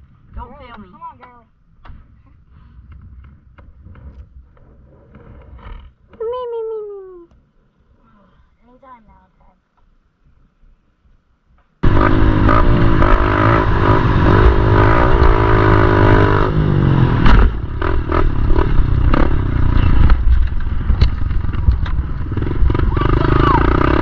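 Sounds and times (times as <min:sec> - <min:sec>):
pit bike engine revving: 0:11.8 - 0:24.0
loud thump: 0:17.1 - 0:19.3
rattling and clattering: 0:17.4 - 0:22.8.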